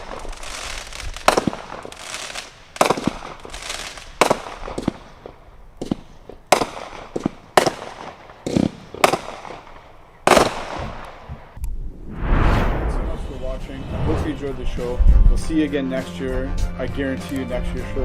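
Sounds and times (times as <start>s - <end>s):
firework bangs with crackling: 0.0s - 11.6s.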